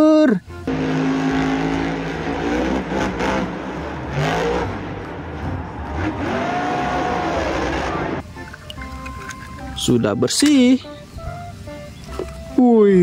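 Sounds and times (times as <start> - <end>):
engine rumbling and revving: 0.6 - 8.2.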